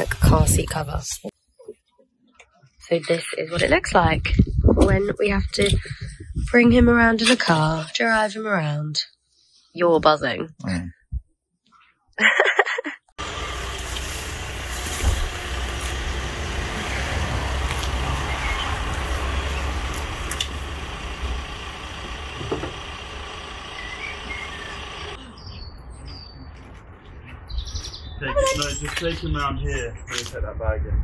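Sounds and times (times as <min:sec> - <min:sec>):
car cabin road and engine rumble: 0:13.2 - 0:25.2, 0:28.2 - 0:29.1
birds chirping: 0:13.2 - 0:30.1.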